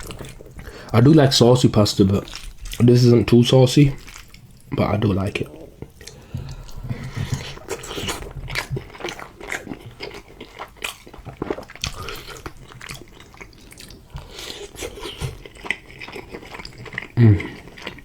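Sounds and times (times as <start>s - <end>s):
person chewing food: 0.0s - 18.0s.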